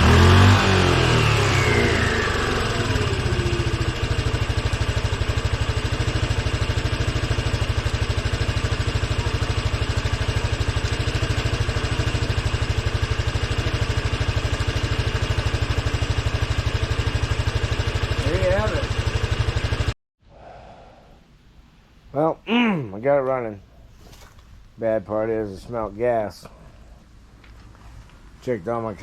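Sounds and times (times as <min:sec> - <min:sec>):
scooter engine idling: 0:00.0 - 0:20.0
scooter engine revving: 0:00.0 - 0:20.0.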